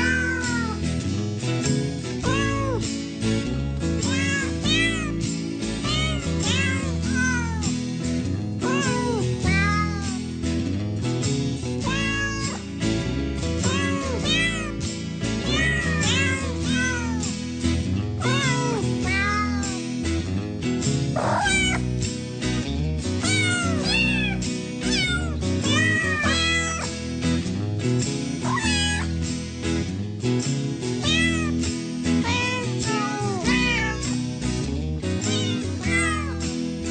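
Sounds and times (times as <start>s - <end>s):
cat meowing: 0.0s - 0.8s, 2.2s - 2.8s, 4.0s - 5.2s, 5.8s - 7.8s, 8.6s - 10.2s, 11.8s - 12.6s, 13.6s - 14.8s, 15.4s - 17.2s, 18.2s - 19.8s, 21.2s - 21.9s, 23.2s - 26.9s, 28.4s - 29.2s, 31.0s - 31.6s, 32.2s - 34.2s, 35.3s - 36.4s
background music: 0.0s - 36.9s.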